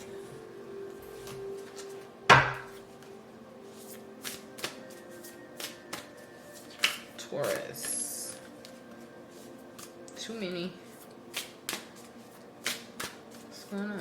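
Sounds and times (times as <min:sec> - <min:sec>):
sharp knock on table: 0:02.3 - 0:02.7
cards tapping and clicking: 0:06.7 - 0:07.9, 0:11.3 - 0:12.0, 0:12.6 - 0:13.4.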